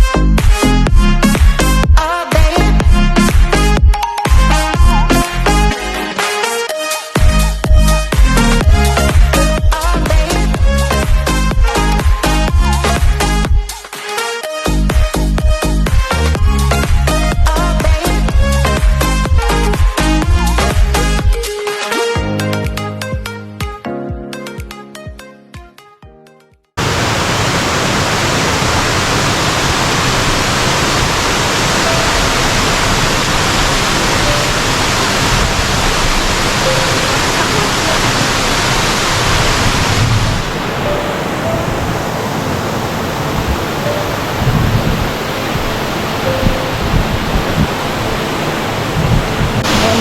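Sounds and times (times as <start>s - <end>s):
waterfall rushing: 26.8s - 50.0s.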